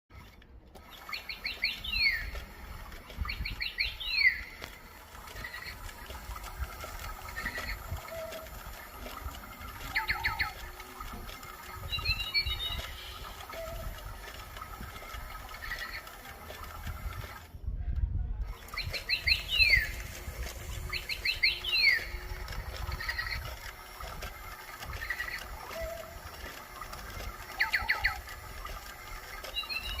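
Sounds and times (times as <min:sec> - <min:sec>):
bird calling quick notes: 0:00.8 - 0:02.6, 0:03.2 - 0:08.9, 0:09.8 - 0:10.8, 0:11.5 - 0:16.2, 0:20.9 - 0:23.6, 0:25.0 - 0:26.4, 0:27.4 - 0:28.6
soft bird chirps: 0:00.8 - 0:02.6, 0:09.8 - 0:10.8, 0:11.6 - 0:13.9, 0:18.6 - 0:20.1, 0:20.9 - 0:22.3, 0:29.3 - 0:30.0.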